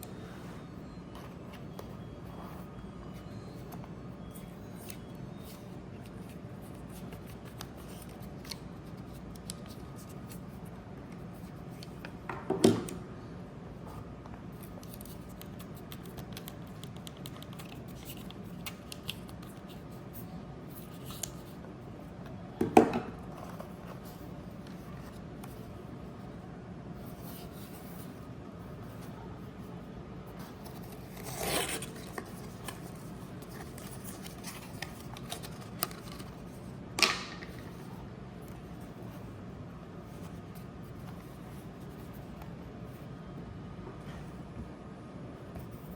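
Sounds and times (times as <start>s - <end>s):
packaging clicks and scrapes: 30.4s - 36.6s.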